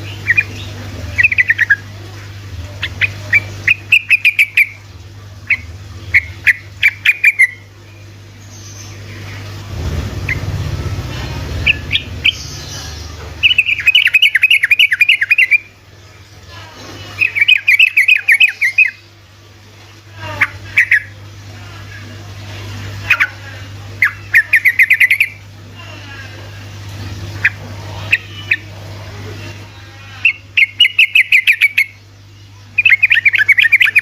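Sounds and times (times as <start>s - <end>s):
low hum: 0.0s - 34.0s
bird chattering trill: 2.8s - 4.8s, 5.5s - 7.7s, 11.6s - 15.7s, 17.2s - 19.0s, 20.2s - 21.1s, 24.0s - 25.4s, 30.2s - 32.0s, 32.8s - 34.0s.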